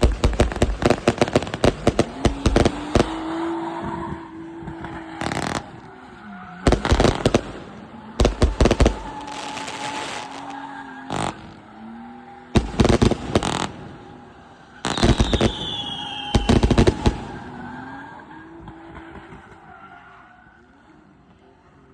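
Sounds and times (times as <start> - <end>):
falling firework whistles: 0.0 - 11.7, 12.5 - 14.1, 14.8 - 18.2
fireworks bangs and crackling: 0.0 - 17.9.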